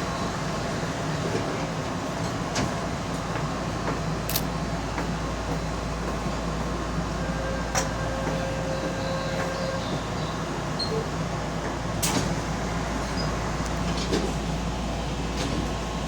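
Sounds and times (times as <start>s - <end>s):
train humming: 0.0s - 16.0s
sharp clicks: 4.3s - 4.5s.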